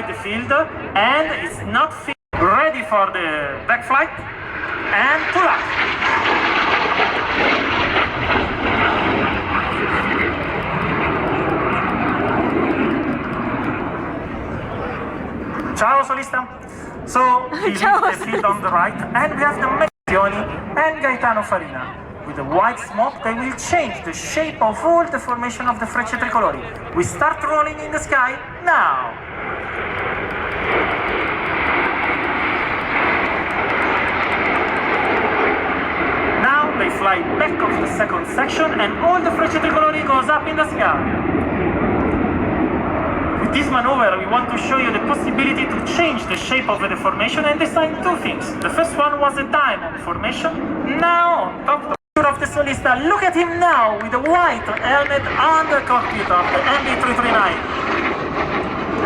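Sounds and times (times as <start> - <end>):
jet engine rushing: 2.4 - 59.0.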